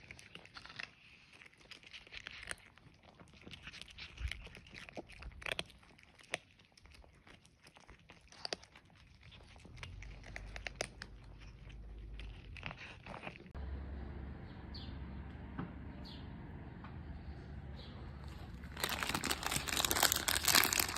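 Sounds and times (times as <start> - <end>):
bag crinkling and rustling: 18.2 - 20.9.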